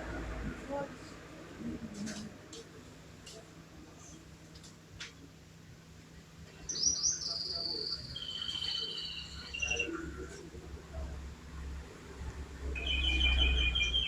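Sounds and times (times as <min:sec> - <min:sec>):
canary singing trills: 0:06.6 - 0:10.3, 0:12.8 - 0:14.0.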